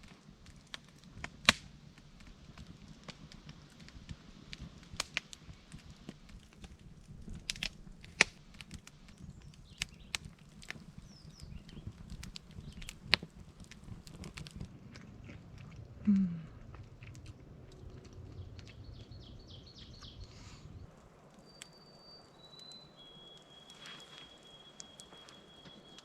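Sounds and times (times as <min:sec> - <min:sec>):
clicks and crackles: 0:00.0 - 0:26.0
bird chirping and whistling: 0:18.8 - 0:20.8, 0:21.4 - 0:26.0.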